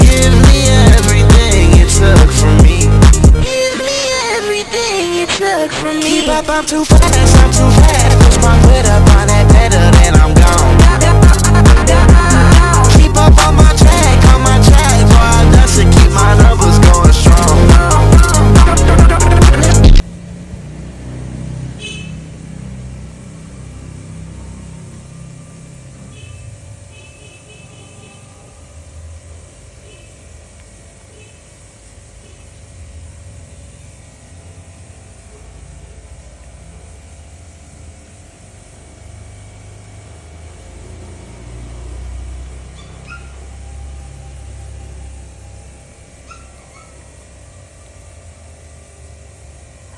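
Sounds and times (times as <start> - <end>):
loud hip hop music: 0.0 - 20.0
dog whining: 42.7 - 43.5, 46.3 - 47.1.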